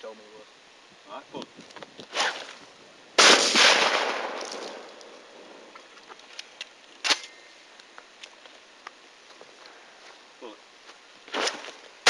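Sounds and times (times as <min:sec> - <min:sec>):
sharp crack: 0:02.1 - 0:02.6, 0:03.2 - 0:05.2
shotgun shot: 0:03.2 - 0:04.9.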